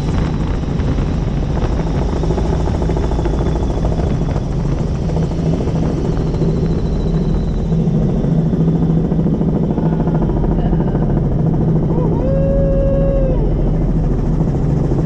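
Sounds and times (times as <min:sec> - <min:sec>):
helicopter rotor chopping: 0:00.0 - 0:15.0
voice holding a drawn-out note: 0:11.8 - 0:13.5.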